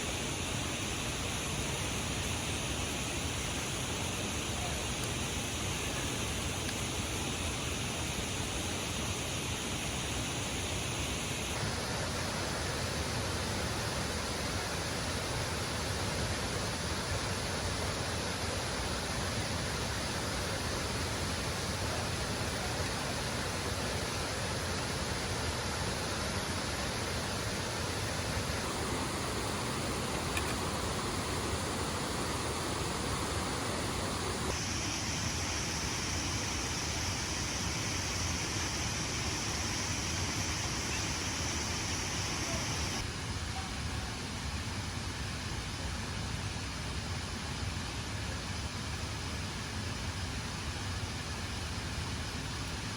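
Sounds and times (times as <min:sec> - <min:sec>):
waterfall rushing: 0:11.6 - 0:35.2.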